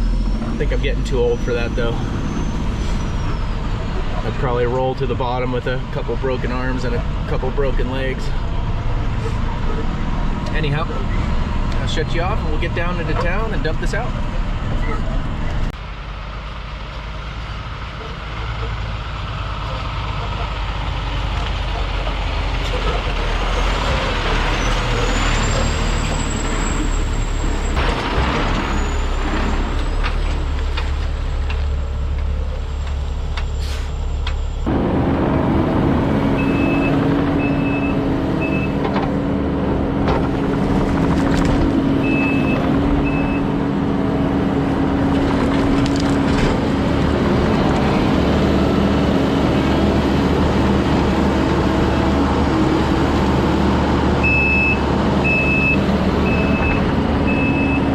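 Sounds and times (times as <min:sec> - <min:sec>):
truck engine running: 0:00.0 - 0:57.9
reversing alarm beeps: 0:54.2 - 0:57.9.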